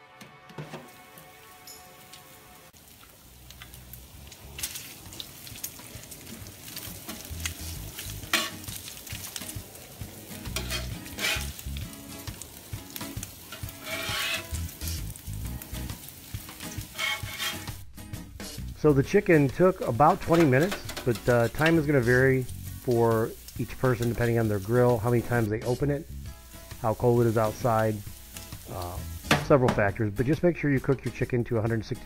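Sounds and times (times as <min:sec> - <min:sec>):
chicken sizzling on a grill: 0:00.6 - 0:32.0
bacon frying on a griddle: 0:02.1 - 0:31.9
metal spatula scraping and clacking: 0:08.0 - 0:08.8, 0:10.4 - 0:11.6, 0:13.5 - 0:14.7, 0:16.5 - 0:17.8, 0:20.2 - 0:21.9.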